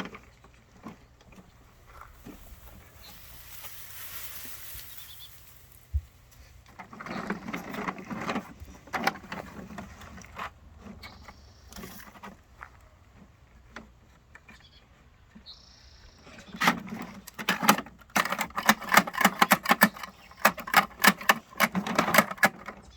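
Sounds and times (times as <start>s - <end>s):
rattling and clattering: 16.5s - 22.9s.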